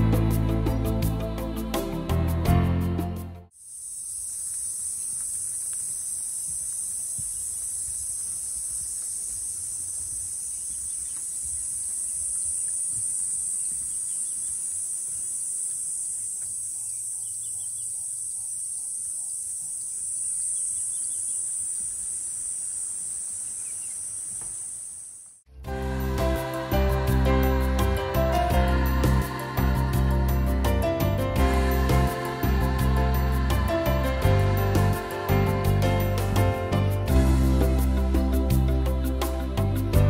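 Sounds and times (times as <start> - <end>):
shrill insect chorus: 3.5 - 37.0
faint bird chirps: 8.2 - 25.2.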